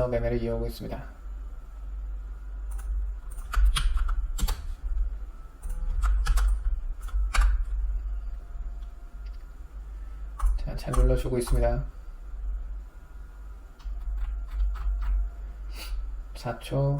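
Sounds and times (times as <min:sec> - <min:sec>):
steady low hum: 0:00.0 - 0:16.9
keyboard keys clicking: 0:02.7 - 0:04.7, 0:05.6 - 0:07.8.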